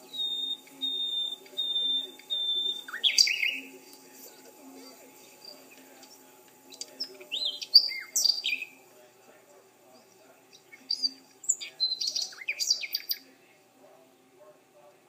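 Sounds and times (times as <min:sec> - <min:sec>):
songbird singing high chirps: 0:00.0 - 0:03.7, 0:06.7 - 0:08.8, 0:10.5 - 0:13.2.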